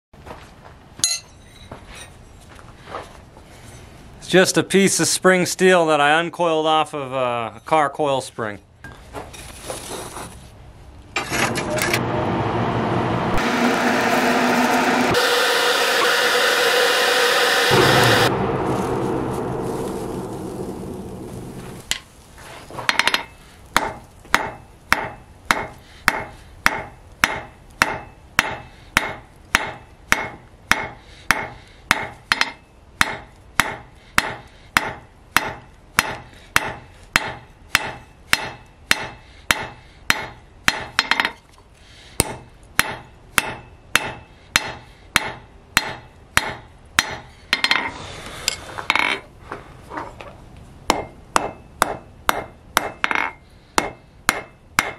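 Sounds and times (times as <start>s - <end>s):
hammer striking steel on anvil: 1.0s - 1.4s, 17.7s - 20.7s, 22.9s - 41.4s, 42.2s - 47.9s, 50.9s - 54.9s
rushing noise: 11.5s - 22.6s.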